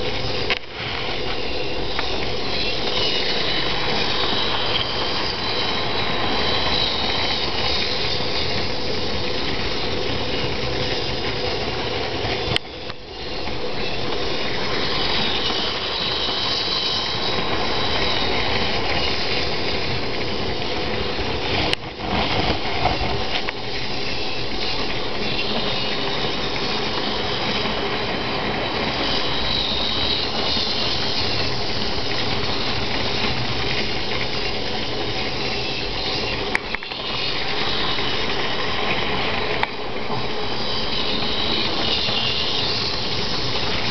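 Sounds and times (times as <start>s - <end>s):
model train motor whine: 0.0s - 43.9s
wheels rattling on rail: 0.0s - 43.9s.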